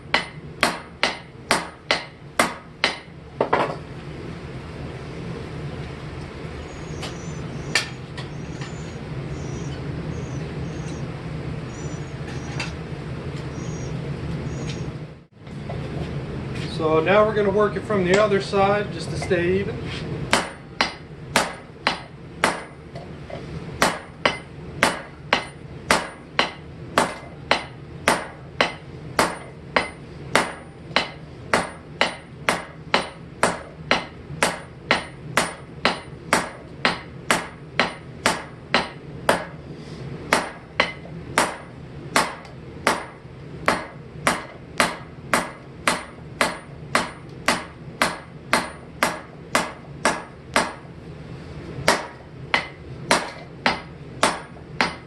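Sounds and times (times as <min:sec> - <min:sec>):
hammer striking metal on anvil: 0:00.1 - 0:03.8, 0:07.7 - 0:08.0, 0:20.3 - 0:22.8, 0:23.8 - 0:39.6, 0:40.3 - 0:50.9, 0:51.8 - 0:55.0.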